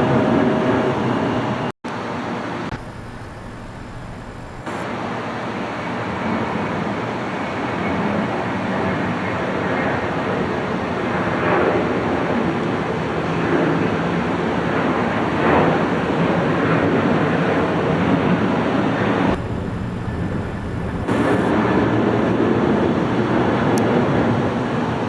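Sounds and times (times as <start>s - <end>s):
jet airliner engines roaring: 0.0s - 25.0s.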